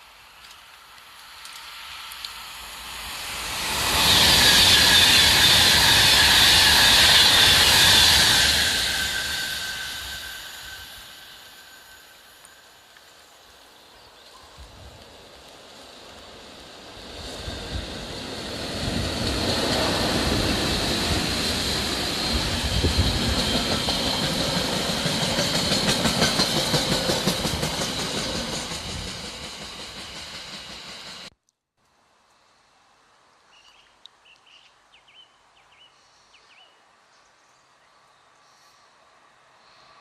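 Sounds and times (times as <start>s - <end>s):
freight train passing: 0.0s - 31.3s.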